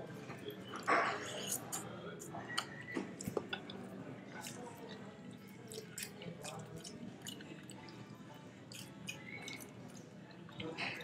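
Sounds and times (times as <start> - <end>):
person chewing with wet mouth clicks: 8.7 - 9.7.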